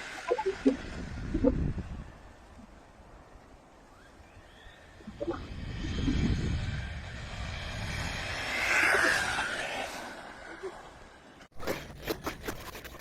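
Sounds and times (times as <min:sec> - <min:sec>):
rc car motor whir: 0:05.5 - 0:10.8.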